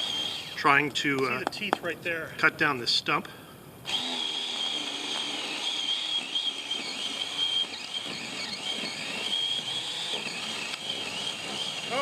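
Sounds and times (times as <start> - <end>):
electric chainsaw cutting wood: 0.0 - 0.6, 3.8 - 12.0.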